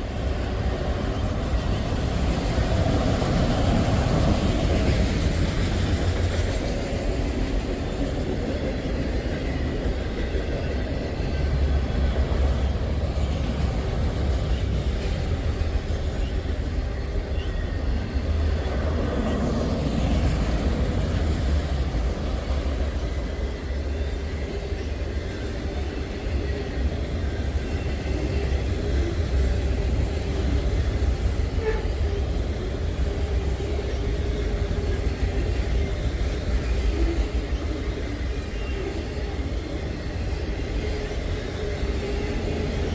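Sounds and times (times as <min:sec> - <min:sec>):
freight train wheels rumbling: 0:00.0 - 0:42.9.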